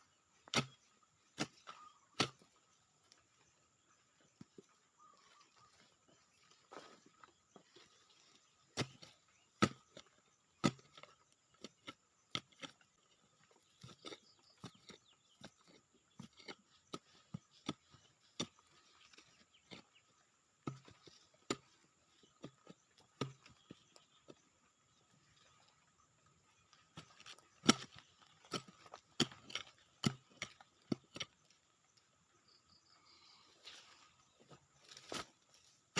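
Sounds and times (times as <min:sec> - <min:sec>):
hand tool striking soil: 0:00.4 - 0:03.2, 0:08.4 - 0:24.5, 0:26.5 - 0:31.6.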